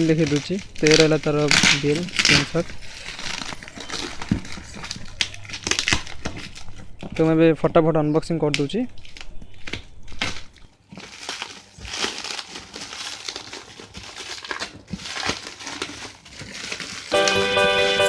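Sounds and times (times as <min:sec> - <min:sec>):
packaging tearing: 0:00.0 - 0:07.5, 0:08.5 - 0:18.0
packaging crinkling and rustling: 0:00.0 - 0:18.0
music: 0:17.1 - 0:18.0.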